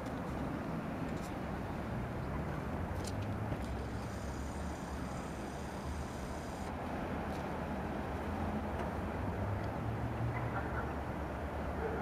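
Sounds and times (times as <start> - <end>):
faint high whine: 3.6 - 6.7.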